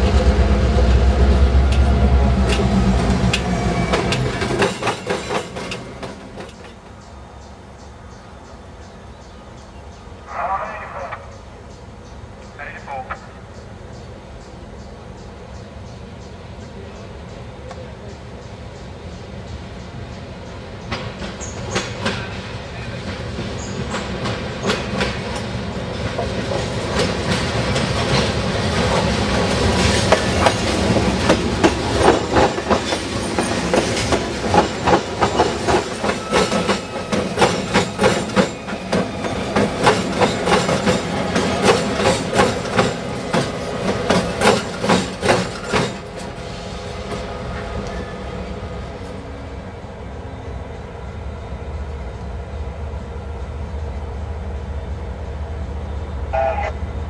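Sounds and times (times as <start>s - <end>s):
train wheels clacking: 0.0s - 7.1s, 18.8s - 48.1s
low train rumble: 0.0s - 57.0s.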